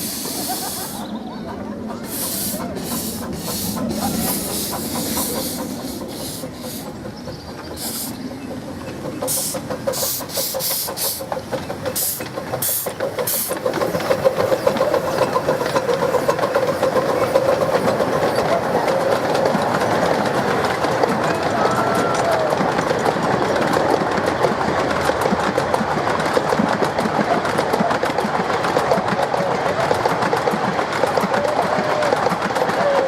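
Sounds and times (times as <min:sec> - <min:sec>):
steam hiss: 0:00.0 - 0:01.2, 0:02.0 - 0:20.6
miniature train wheel clatter: 0:00.0 - 0:33.0.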